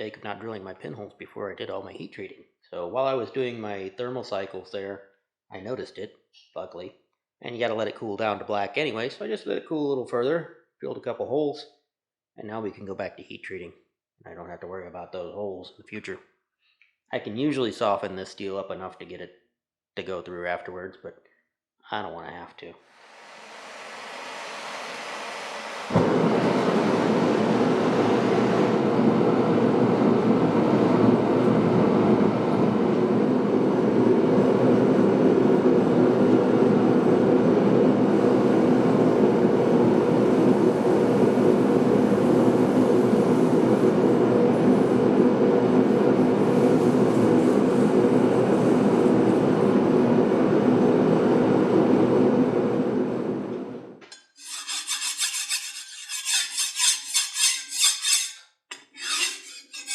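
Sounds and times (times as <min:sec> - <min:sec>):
forge burner roaring: 0:22.9 - 0:53.8.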